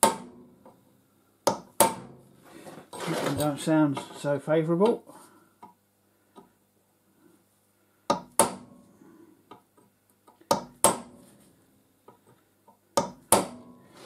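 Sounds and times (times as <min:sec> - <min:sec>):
hammer striking metal punch: 0:00.0 - 0:00.5, 0:01.5 - 0:02.2, 0:08.1 - 0:08.8, 0:10.5 - 0:11.2, 0:13.0 - 0:13.8.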